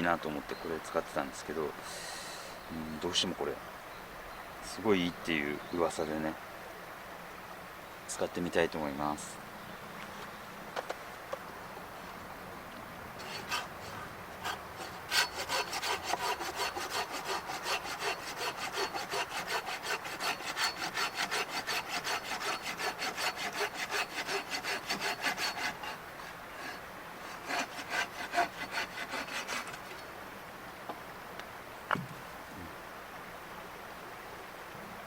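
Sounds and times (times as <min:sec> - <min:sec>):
hand saw cutting wood: 0:13.2 - 0:30.0.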